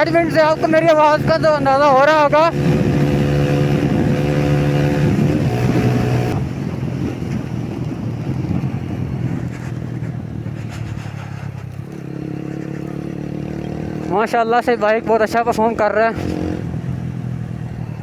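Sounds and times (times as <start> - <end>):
wind rush: 0.0 - 11.6
motorcycle engine revving: 0.0 - 18.0.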